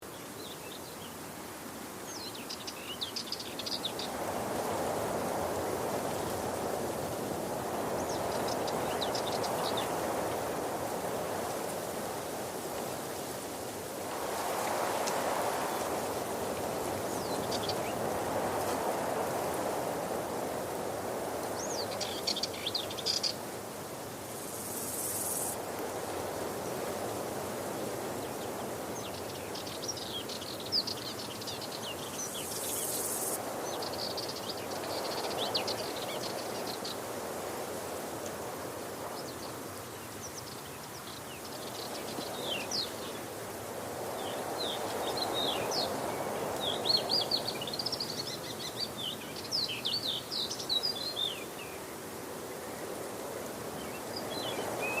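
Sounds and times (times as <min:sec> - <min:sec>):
small birds chirping: 0:02.0 - 0:04.5, 0:07.8 - 0:10.8, 0:14.4 - 0:20.5, 0:21.4 - 0:23.5, 0:28.1 - 0:37.1, 0:44.1 - 0:53.0, 0:53.6 - 0:55.0.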